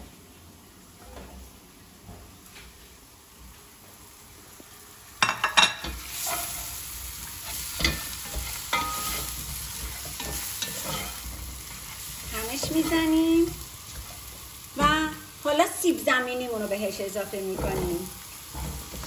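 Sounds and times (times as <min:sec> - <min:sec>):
food sizzling in oil: 0:00.6 - 0:19.0
spatula scraping a pot: 0:05.8 - 0:13.2, 0:17.4 - 0:19.0.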